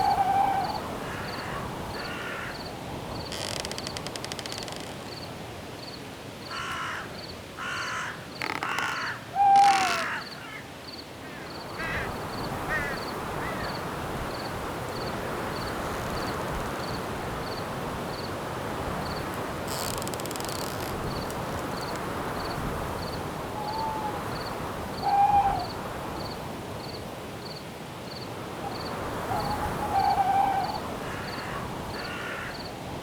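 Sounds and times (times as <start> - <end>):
cricket chirping: 0.0 - 6.6, 7.2 - 18.4, 19.0 - 32.7
bird harsh calls: 7.6 - 10.6.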